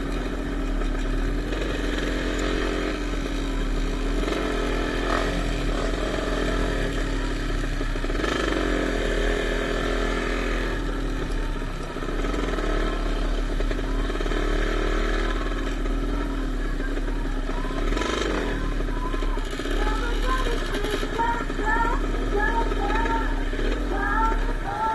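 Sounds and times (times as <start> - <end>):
dirt bike engines revving: 0.0 - 24.9.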